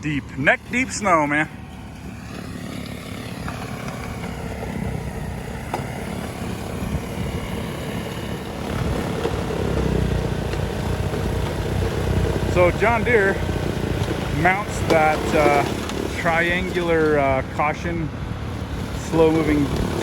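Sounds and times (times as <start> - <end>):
snowblower working through snow: 0.0 - 20.0
tractor diesel engine rumbling: 0.0 - 20.0.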